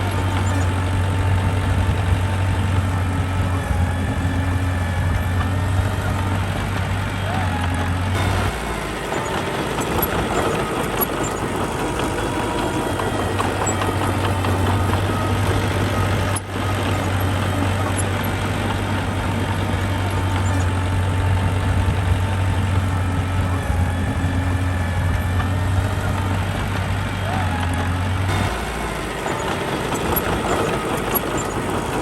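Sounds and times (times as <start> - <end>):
heavy machine engine running: 0.0 - 32.0.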